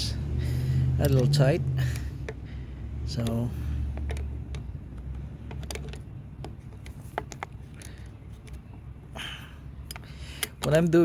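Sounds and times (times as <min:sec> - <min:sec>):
low steady hum: 0:00.0 - 0:11.0
tool and metal parts clicking: 0:03.1 - 0:08.6, 0:09.8 - 0:11.0.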